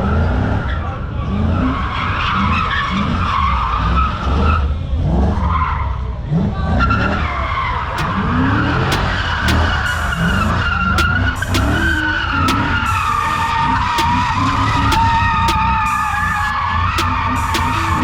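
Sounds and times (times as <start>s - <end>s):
car tyres screeching: 0.0s - 18.0s
car engine revving: 4.2s - 18.0s.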